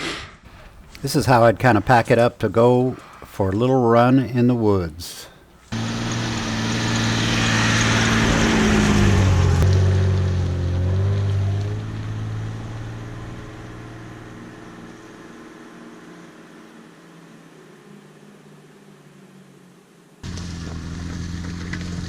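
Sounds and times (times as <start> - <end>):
car engine driving by: 5.2 - 22.0.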